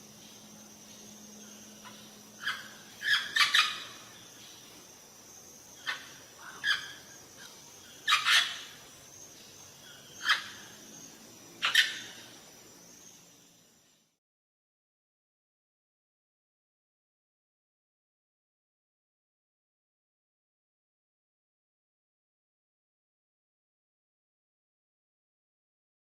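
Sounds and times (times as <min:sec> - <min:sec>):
birds chirping and squawking: 0:01.5 - 0:04.8, 0:05.8 - 0:10.8, 0:11.6 - 0:12.3.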